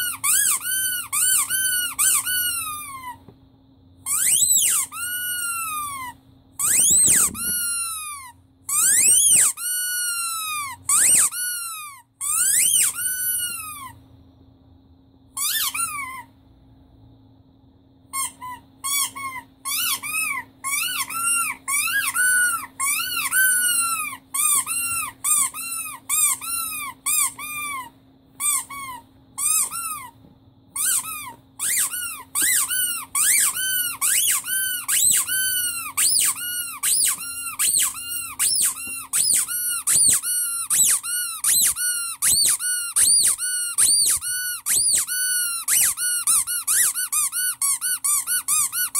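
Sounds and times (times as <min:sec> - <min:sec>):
rubber squeaky toy squeaking: 0:00.0 - 0:03.2, 0:04.0 - 0:14.0, 0:15.3 - 0:16.3, 0:18.1 - 0:48.9.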